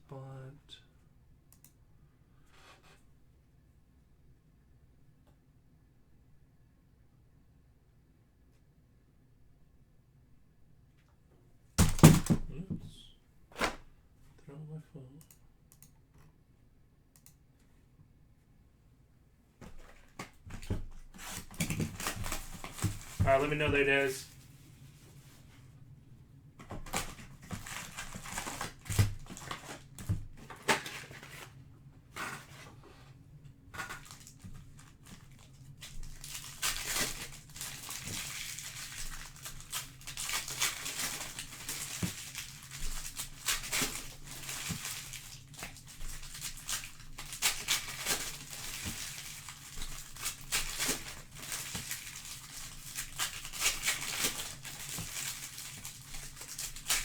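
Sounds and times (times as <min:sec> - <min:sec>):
packaging crinkling and rustling: 0:19.6 - 0:25.5, 0:26.6 - 0:32.8, 0:33.7 - 0:57.0.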